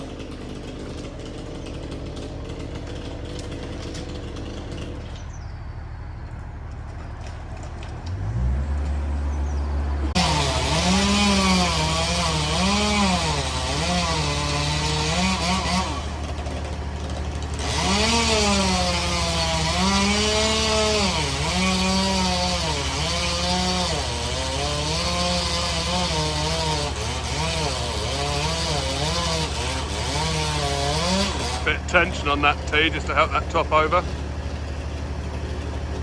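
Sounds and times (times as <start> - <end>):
chainsaw cutting: 0.0 - 5.3, 6.3 - 36.0
machinery idling drone: 30.5 - 36.0.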